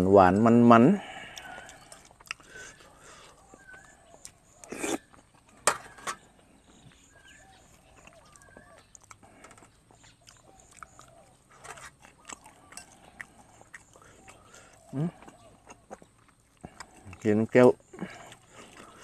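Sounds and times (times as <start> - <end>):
person chewing and smacking: 1.3 - 5.7, 6.3 - 19.0
loud mouth noises: 4.6 - 5.2.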